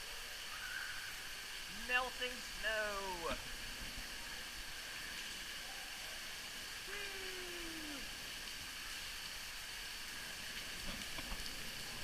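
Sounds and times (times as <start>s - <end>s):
water spraying onto a river: 0.0s - 12.0s.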